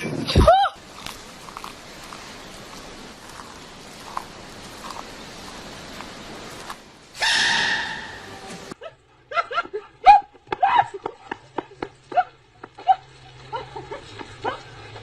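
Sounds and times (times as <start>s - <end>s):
loud hiss with steady tone: 0.0s - 8.8s
dog yipping: 7.2s - 8.3s.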